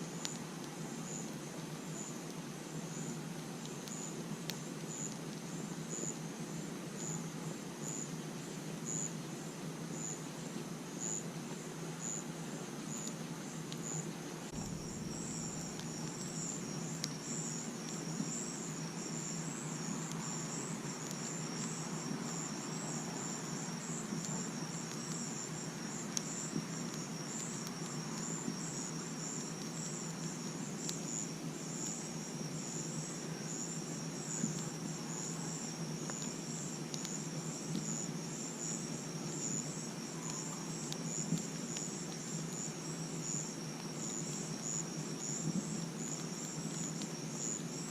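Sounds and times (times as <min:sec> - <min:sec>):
campfire crackling: 0:00.0 - 0:47.9
crickets chirping: 0:00.0 - 0:47.9.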